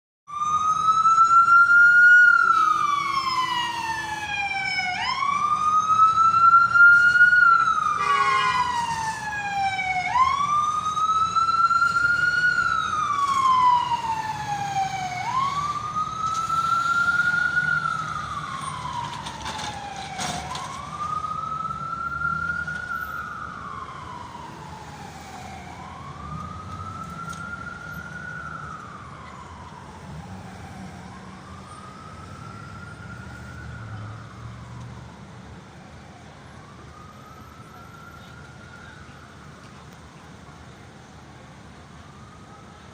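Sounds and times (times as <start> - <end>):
emergency vehicle siren wailing: 0.3 - 42.9
horn-like tone: 8.0 - 8.7.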